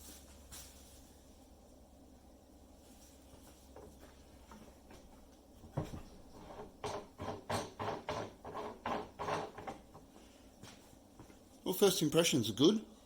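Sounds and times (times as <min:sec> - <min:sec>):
hard parts knocking together: 0:05.7 - 0:10.0.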